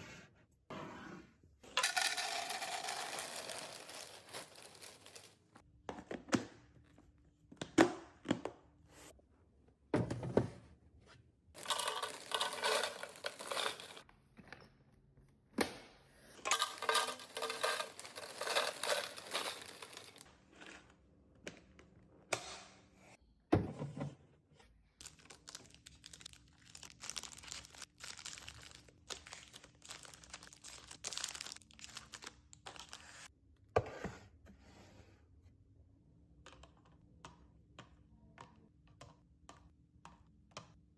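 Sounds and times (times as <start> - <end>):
plastic wrappers crinkling: 2.8 - 5.5, 11.6 - 14.0, 16.5 - 20.2, 25.0 - 33.0.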